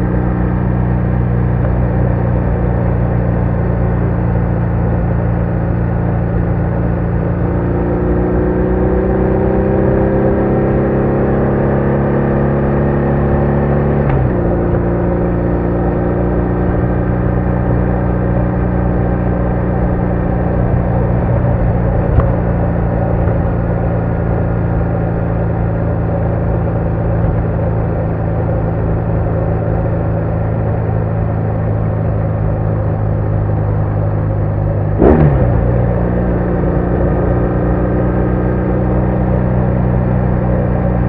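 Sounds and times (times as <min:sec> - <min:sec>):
motorcycle engine revving: 0:05.2 - 0:41.0.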